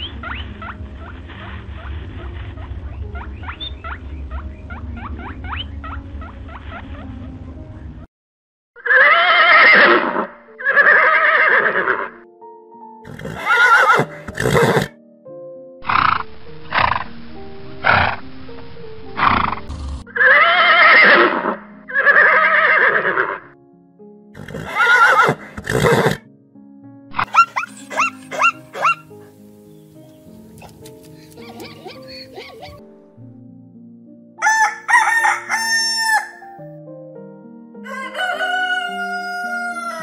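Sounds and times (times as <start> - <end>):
background music: 0.0 - 8.1, 8.8 - 40.0
horse whinnying: 8.8 - 12.2, 13.1 - 14.9, 19.4 - 23.5, 24.4 - 26.2, 27.2 - 29.0.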